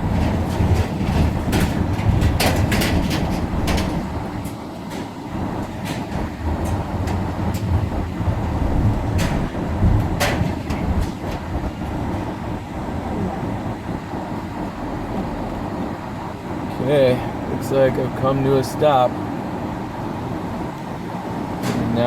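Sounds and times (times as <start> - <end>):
sharp clacks: 0.0 - 12.6
low rumble of car rolling: 0.0 - 22.0.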